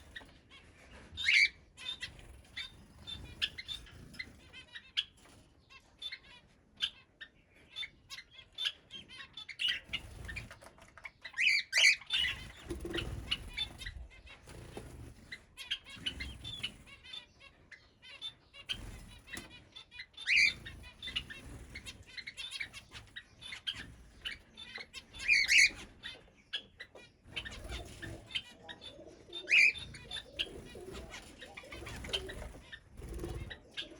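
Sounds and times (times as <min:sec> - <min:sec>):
birds chirping: 0:00.0 - 0:33.9
wings flapping: 0:09.8 - 0:11.1, 0:11.8 - 0:17.0, 0:20.3 - 0:24.4, 0:27.3 - 0:28.5, 0:29.4 - 0:33.9
loud shrill bird calls: 0:15.6 - 0:33.9.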